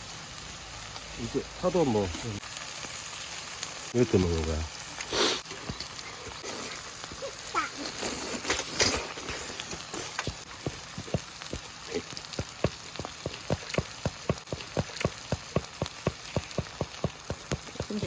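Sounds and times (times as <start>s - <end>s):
pork belly sizzling on a griddle: 0.0s - 18.0s
fat popping and spitting: 5.1s - 18.0s.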